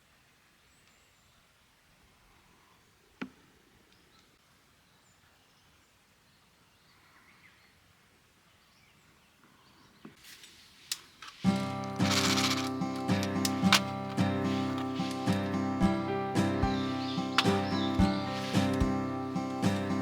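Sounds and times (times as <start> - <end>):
faint bird chirps: 0.7 - 10.2, 14.6 - 20.0.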